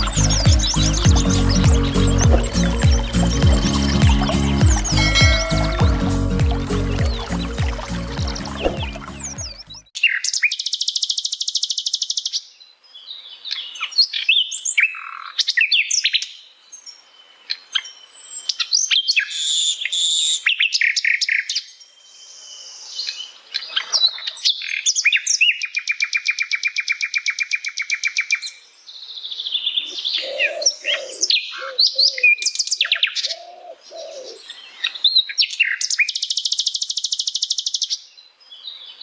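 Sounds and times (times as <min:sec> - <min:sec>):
intro music: 0:00.0 - 0:09.8
flycatcher singing trills: 0:00.0 - 0:12.3, 0:35.7 - 0:37.9.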